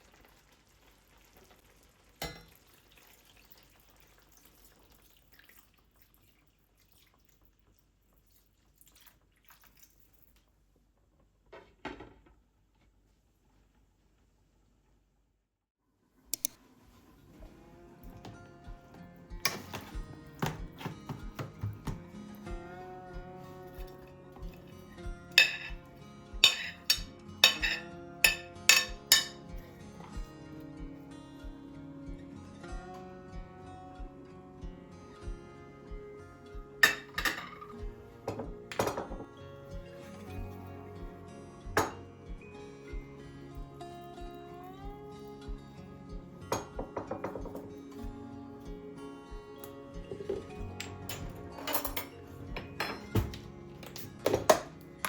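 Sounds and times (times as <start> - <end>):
kitchenware clinking: 2.2 - 2.6, 19.4 - 22.0, 25.3 - 25.8, 26.4 - 29.5, 36.8 - 39.3, 41.8 - 42.0, 46.5 - 47.7, 50.1 - 54.8
sharp click: 16.4 - 16.6
soft background music: 16.4 - 55.0.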